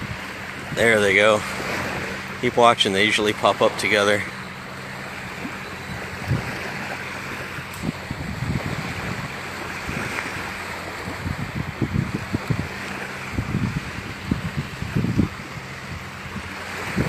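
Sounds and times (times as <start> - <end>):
surf washing on beach: 0.0 - 17.0
wind buffeting microphone: 0.0 - 17.0.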